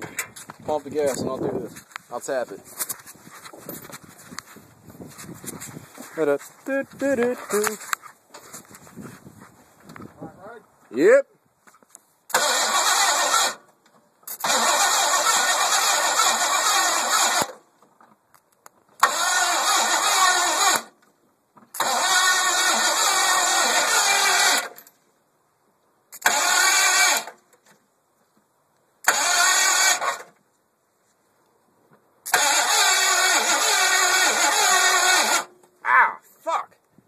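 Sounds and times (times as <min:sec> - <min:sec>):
starter motor cranking engine: 0:12.3 - 0:13.7, 0:14.3 - 0:17.6, 0:19.0 - 0:20.9, 0:21.7 - 0:24.8, 0:26.2 - 0:27.4, 0:29.0 - 0:30.3, 0:32.3 - 0:35.5.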